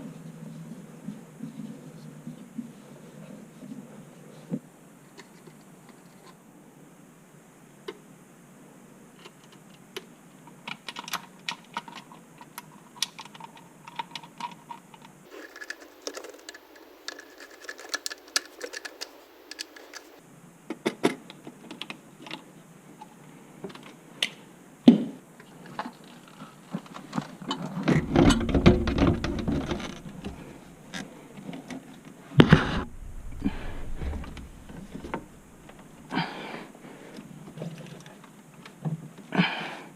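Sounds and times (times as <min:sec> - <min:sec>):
tools and parts clicking: 0:15.3 - 0:20.2
low noisy rumble: 0:27.9 - 0:31.3, 0:32.4 - 0:37.1.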